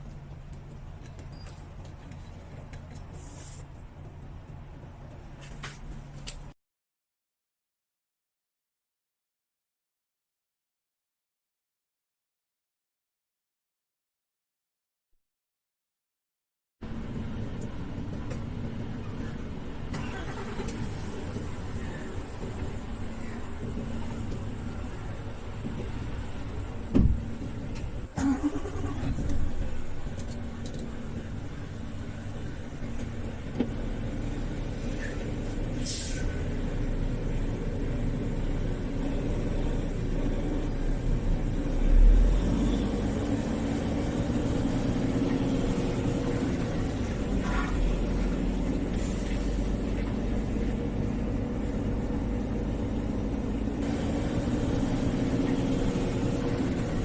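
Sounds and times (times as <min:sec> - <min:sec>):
diesel truck engine running: 0:16.8 - 0:57.0.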